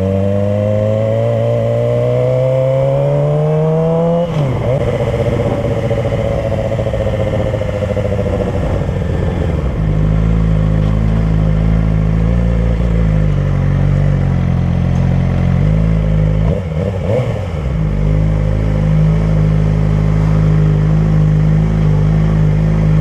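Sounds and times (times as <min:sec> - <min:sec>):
motorcycle engine idling: 0:04.5 - 0:15.6.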